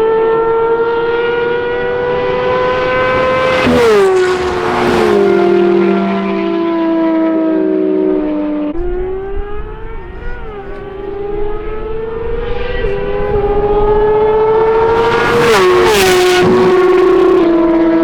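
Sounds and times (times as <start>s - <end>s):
sports car engine accelerating: 0.0s - 18.0s
loud rush of noise: 14.4s - 17.8s.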